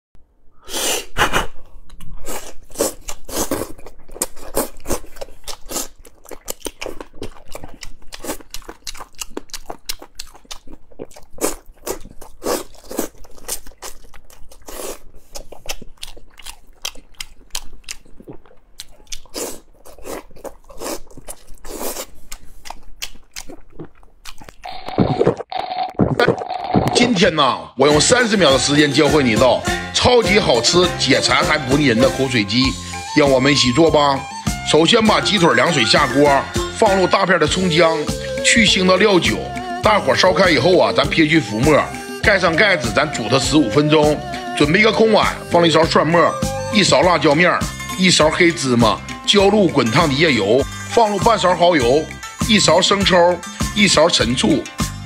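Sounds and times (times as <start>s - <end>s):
person chewing and crunching food: 0.8s - 27.0s.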